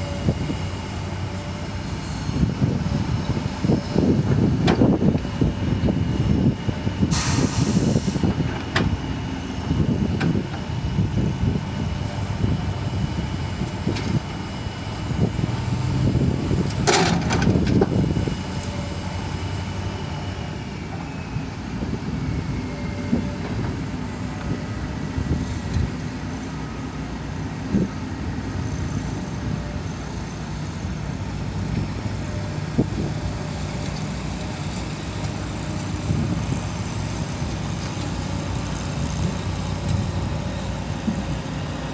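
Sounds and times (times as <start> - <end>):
excavator diesel engine running: 0.0 - 41.9
metal clanks and knocks: 16.8 - 17.8.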